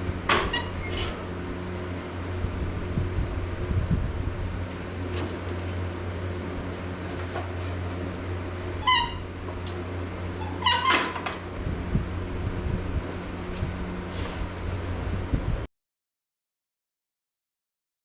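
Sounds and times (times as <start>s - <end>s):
steady low hum: 0.0s - 15.7s.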